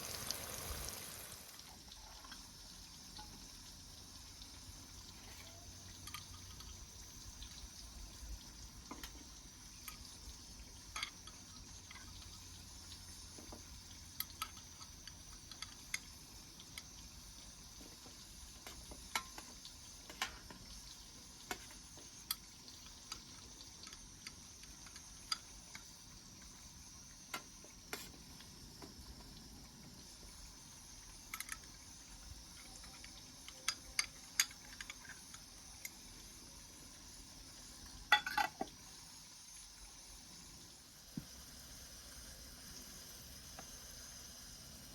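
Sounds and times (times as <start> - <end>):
wood fire hissing: 0.0 - 44.9.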